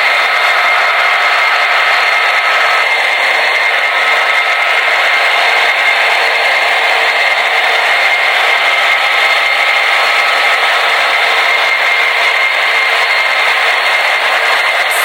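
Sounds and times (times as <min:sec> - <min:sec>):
model train diesel engine sounds: 0:00.0 - 0:15.0
held high tone: 0:14.4 - 0:15.0.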